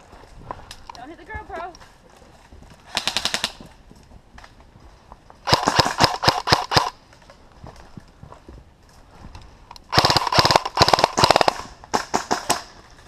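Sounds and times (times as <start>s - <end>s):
airsoft rifle automatic bursts: 2.9s - 3.6s, 5.5s - 7.0s, 9.9s - 12.6s.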